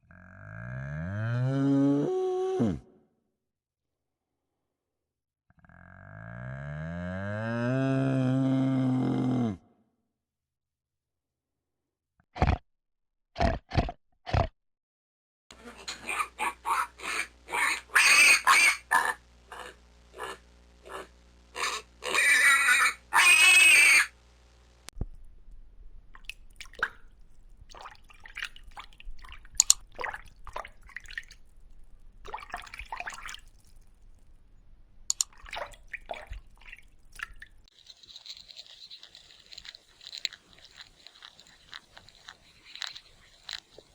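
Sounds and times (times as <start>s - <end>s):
short loud animal calls: 21.6s - 24.1s.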